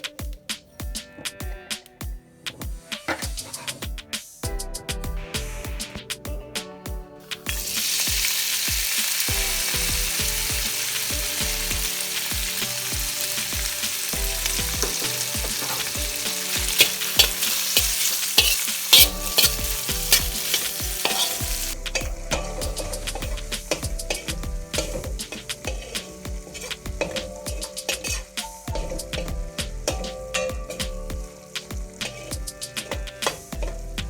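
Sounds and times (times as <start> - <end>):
food frying in hot oil: 7.4 - 34.0
utensil scraping pan: 10.1 - 33.9.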